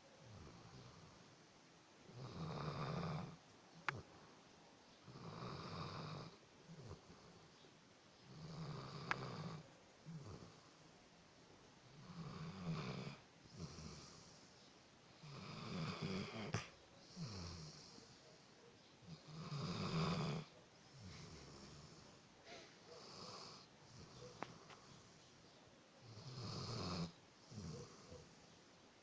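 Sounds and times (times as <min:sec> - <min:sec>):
dog snoring loudly: 0:02.1 - 0:03.4, 0:05.1 - 0:07.3, 0:08.3 - 0:10.7, 0:11.9 - 0:14.4, 0:15.2 - 0:18.2, 0:19.1 - 0:22.1, 0:22.9 - 0:24.4, 0:26.0 - 0:28.4.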